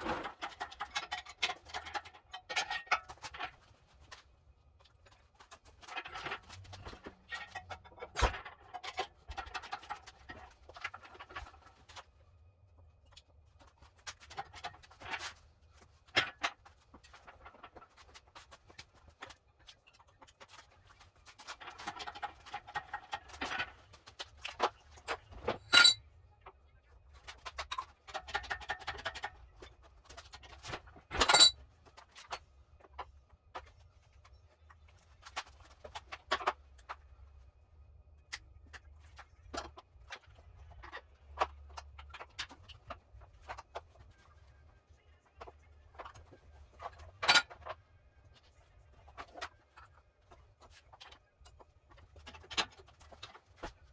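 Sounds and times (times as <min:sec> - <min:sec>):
metal tools clinking and rattling: 0:25.4 - 0:26.0, 0:31.1 - 0:31.6
ringing metal clanks: 0:25.6 - 0:26.0, 0:31.2 - 0:31.5.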